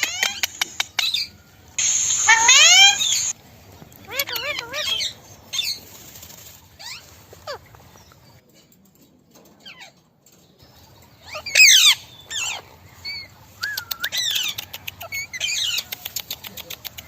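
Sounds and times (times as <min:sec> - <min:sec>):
parrots screeching: 0:01.8 - 0:03.3, 0:11.3 - 0:12.6.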